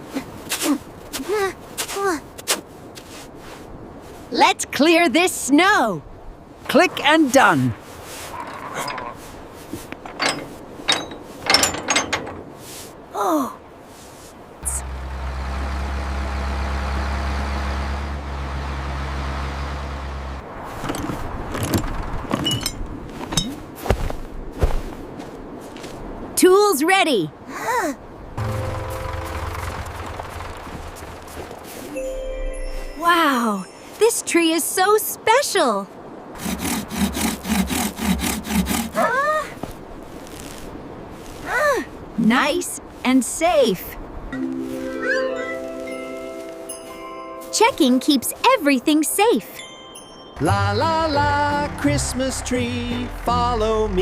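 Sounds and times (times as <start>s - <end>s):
clicks and knocks: 9.9s - 12.5s
engine humming: 14.6s - 23.5s, 28.4s - 32.8s, 50.4s - 54.0s
saw cutting through wood: 36.4s - 39.1s
cartoon character cry: 39.0s - 39.6s.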